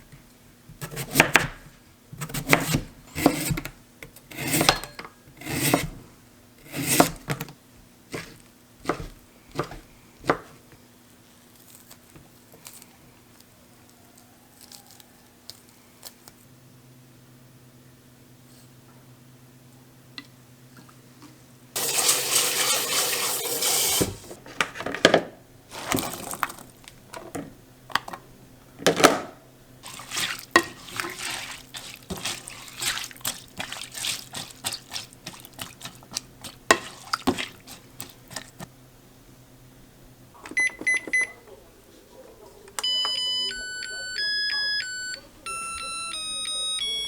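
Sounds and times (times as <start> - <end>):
kitchen tap running: 21.8 - 24.4, 25.7 - 27.1, 29.8 - 38.7
dishes and utensils clattering: 29.8 - 38.7
electronic beeping: 42.8 - 47.0.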